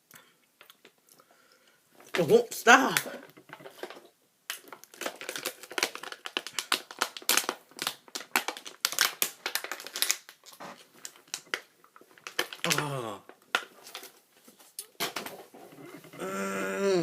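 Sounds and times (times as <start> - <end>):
plastic packaging crinkling: 2.0 - 15.5.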